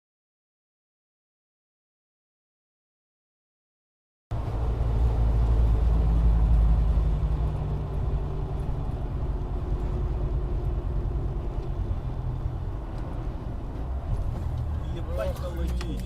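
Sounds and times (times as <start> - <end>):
car engine and road rumble: 4.3 - 16.0.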